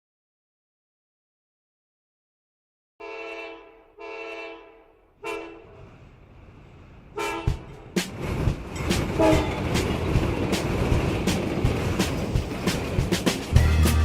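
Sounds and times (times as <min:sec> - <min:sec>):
train horn blasts: 0:03.0 - 0:05.8, 0:07.2 - 0:07.7, 0:09.2 - 0:09.7
train rumbling past: 0:04.6 - 0:14.0
wheel clicks over rail joints: 0:07.6 - 0:13.6.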